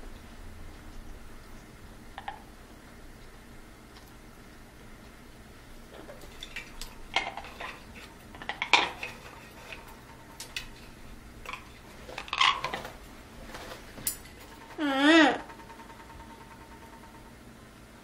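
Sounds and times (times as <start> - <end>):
dishes and cutlery clinking: 6.0 - 10.8.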